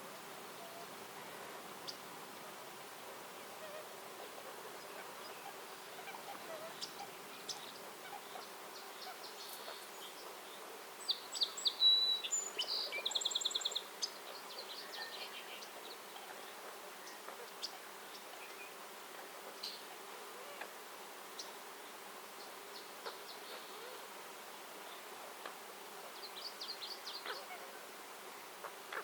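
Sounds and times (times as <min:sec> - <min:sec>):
songbirds chipping and trilling: 0:00.0 - 0:29.0.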